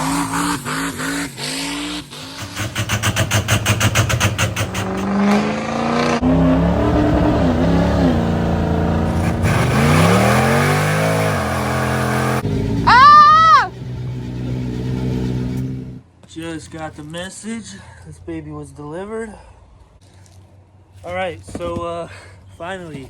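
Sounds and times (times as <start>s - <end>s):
diesel truck engine revving: 0.0s - 16.0s.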